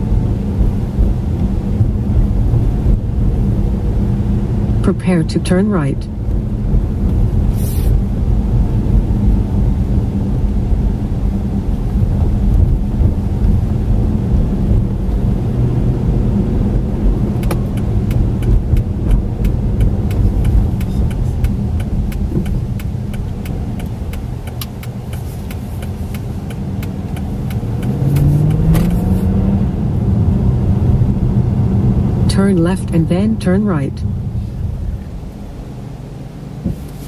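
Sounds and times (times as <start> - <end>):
car engine and road rumble: 0.0 - 37.0
light irregular ticks: 17.4 - 29.0.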